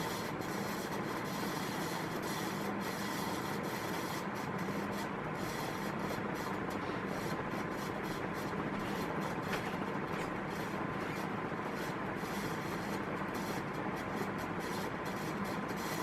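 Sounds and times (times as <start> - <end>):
ceiling fan air rush: 0.0 - 16.0
faint motor hum: 0.0 - 16.0.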